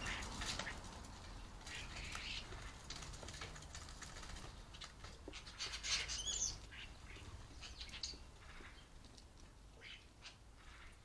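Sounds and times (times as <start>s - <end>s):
faint bird chirps and clicks: 4.8s - 11.0s.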